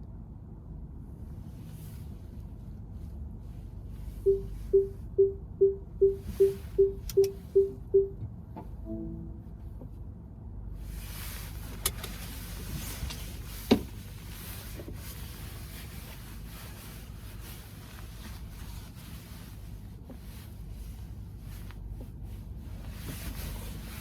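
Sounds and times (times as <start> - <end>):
car road rumble: 0.2 - 24.0
wind and road noise hiss: 10.7 - 24.0.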